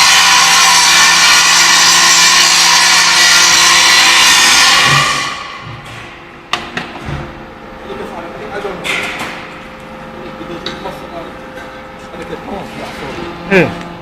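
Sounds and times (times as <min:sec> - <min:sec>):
power tool running: 0:00.0 - 0:05.7.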